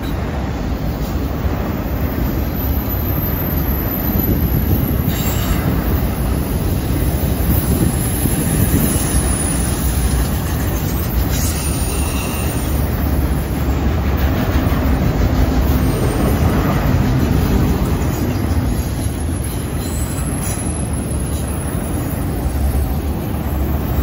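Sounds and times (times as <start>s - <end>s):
steel wheels rumbling on rail: 0.0s - 24.0s
faint wheel squeal: 7.7s - 12.8s.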